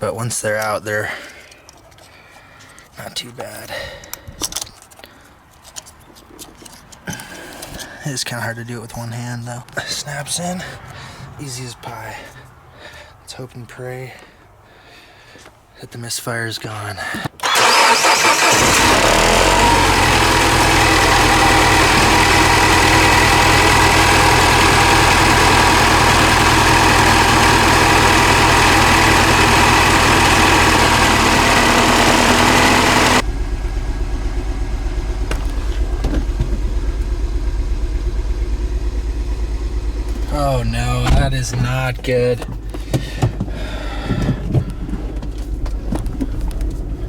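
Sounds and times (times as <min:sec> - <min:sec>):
car engine starting and running: 0:17.4 - 0:47.0.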